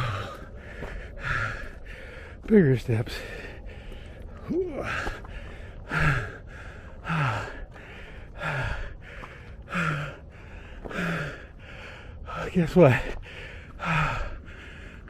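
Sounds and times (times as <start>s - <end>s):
man breathing hard: 0.0s - 2.5s, 4.8s - 12.4s, 13.1s - 15.0s.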